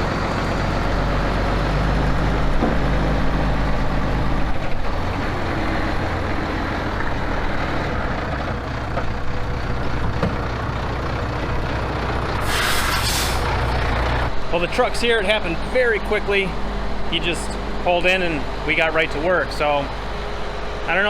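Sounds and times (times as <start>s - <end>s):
truck diesel engine droning: 0.0s - 21.0s.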